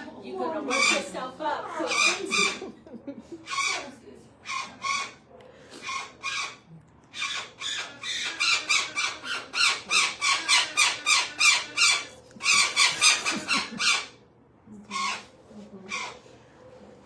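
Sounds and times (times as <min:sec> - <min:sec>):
parrot squawking harshly: 0:00.7 - 0:02.7, 0:03.4 - 0:05.2, 0:05.8 - 0:14.2, 0:14.9 - 0:16.2.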